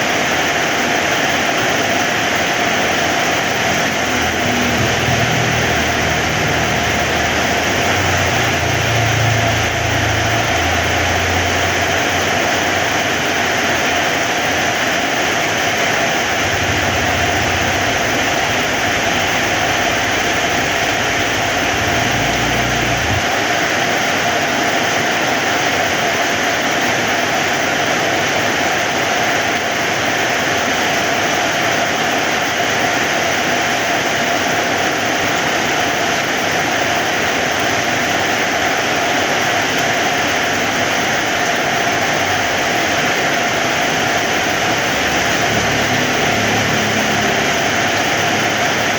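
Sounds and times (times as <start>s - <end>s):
heavy rain: 0.0s - 48.9s
low rumble: 3.7s - 13.2s, 16.2s - 23.4s.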